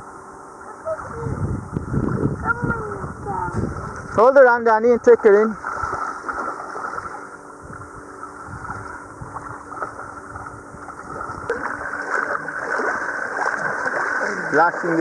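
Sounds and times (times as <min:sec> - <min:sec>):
sea water lapping and splashing: 0:00.6 - 0:15.0
wind on microphone: 0:00.8 - 0:04.3, 0:05.6 - 0:11.9.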